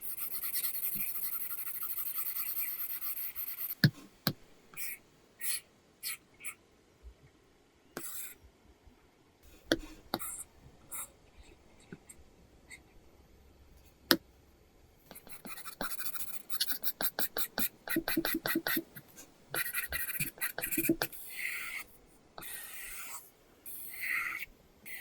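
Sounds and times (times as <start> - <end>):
stylus scratching on tablet screen: 0.0 - 4.1, 4.8 - 6.6, 8.0 - 8.4, 9.7 - 12.1, 15.1 - 25.0.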